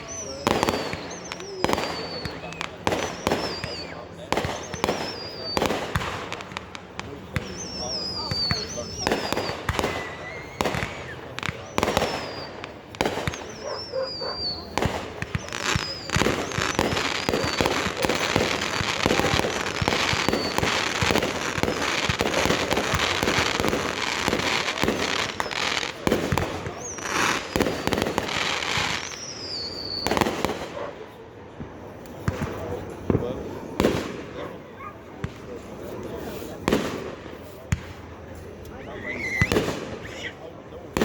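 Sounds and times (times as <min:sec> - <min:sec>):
firework whistles falling in pitch: 0:00.0 - 0:06.4, 0:07.4 - 0:30.6, 0:38.9 - 0:40.1
fireworks bangs and crackling: 0:00.0 - 0:41.0.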